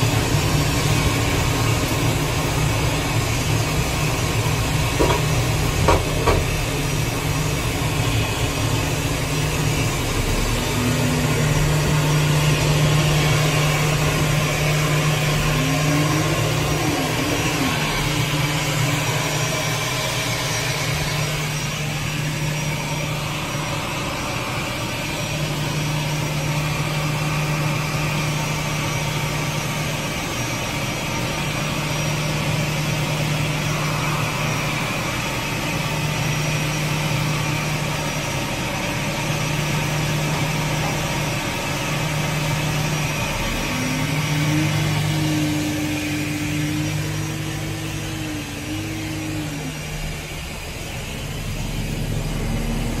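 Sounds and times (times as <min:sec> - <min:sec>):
aircraft engine drone: 0:00.0 - 0:53.0
rising high tone: 0:10.1 - 0:24.6, 0:43.3 - 0:50.5.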